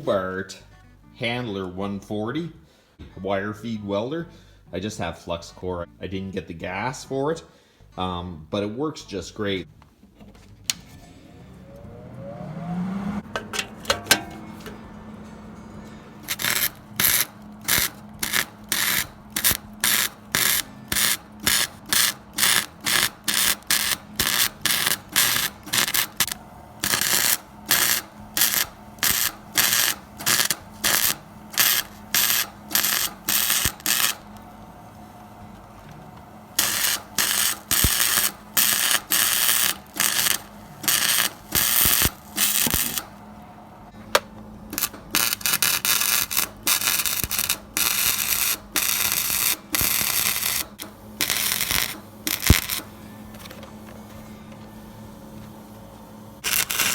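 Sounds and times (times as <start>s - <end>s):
welder crackling bursts: 16.1s - 53.6s, 55.6s - 56.9s.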